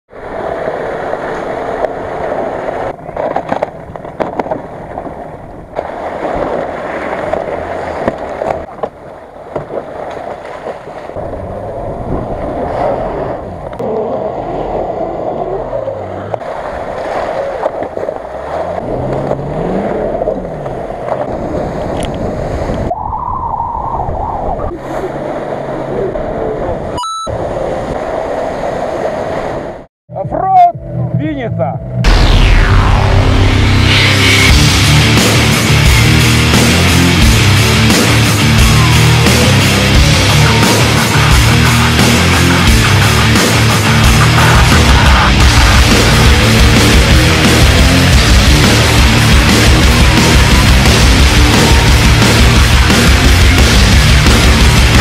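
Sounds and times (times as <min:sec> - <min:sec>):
water rushing and splashing: 0:00.1 - 0:23.0, 0:24.0 - 0:29.9, 0:32.5 - 0:55.0
engine revving: 0:11.2 - 0:21.8, 0:32.0 - 0:55.0.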